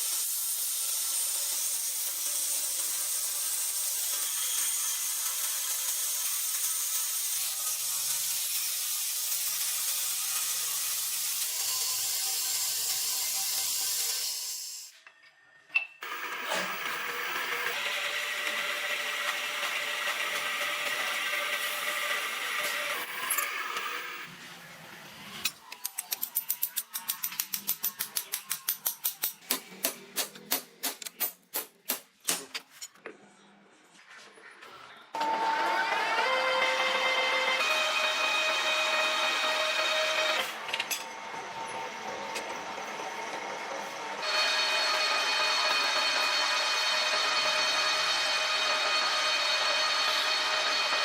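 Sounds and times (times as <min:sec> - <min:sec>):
power tool running: 0:16.0 - 0:24.3, 0:35.2 - 0:51.0.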